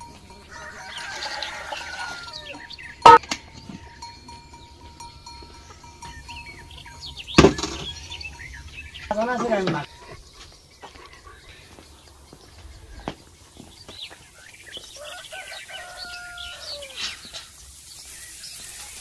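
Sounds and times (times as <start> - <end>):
sharp metal clang: 7.1 - 8.4.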